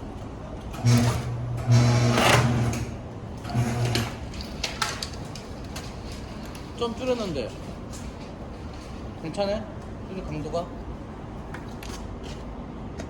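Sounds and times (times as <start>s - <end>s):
strapping machine motor: 0.7s - 6.6s.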